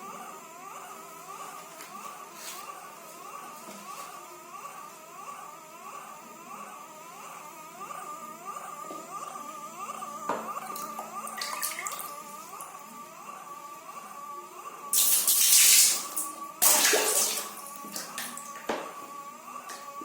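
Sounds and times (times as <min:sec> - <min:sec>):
water tap whining and squeaking: 0:10.3 - 0:12.8, 0:15.0 - 0:19.1.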